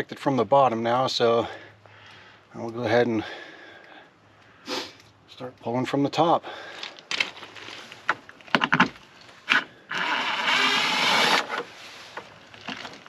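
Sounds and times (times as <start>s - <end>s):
rough scraping rub: 8.7s - 13.0s.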